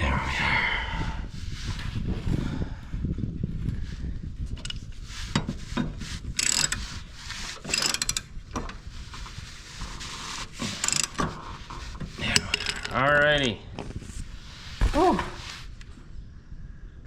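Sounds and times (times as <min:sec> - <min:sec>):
ratchet wrench clicking: 0:06.4 - 0:06.8, 0:07.7 - 0:08.2, 0:10.8 - 0:11.2.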